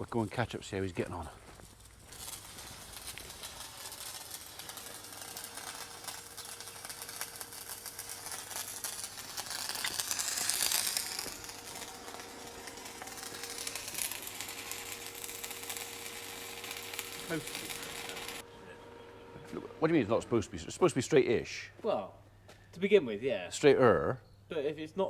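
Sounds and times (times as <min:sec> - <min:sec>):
arc welding crackle: 0:00.0 - 0:18.5
welder hum: 0:00.0 - 0:21.5.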